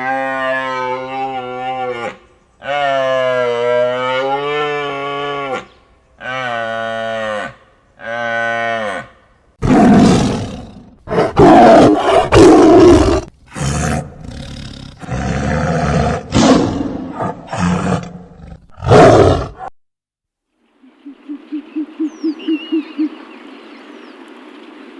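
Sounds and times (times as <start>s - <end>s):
big cat roaring and growling: 9.6s - 19.7s.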